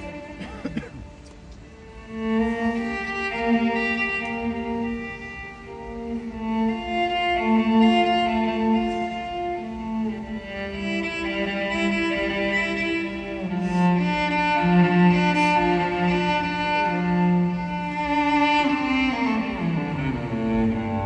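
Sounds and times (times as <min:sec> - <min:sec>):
bowed strings holding long chords: 0:00.0 - 0:21.0.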